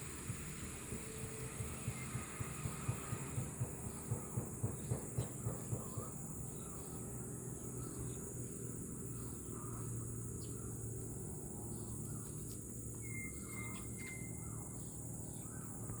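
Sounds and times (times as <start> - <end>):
thin held whistle: 13.0 - 14.4
short bird chirps: 13.0 - 14.8.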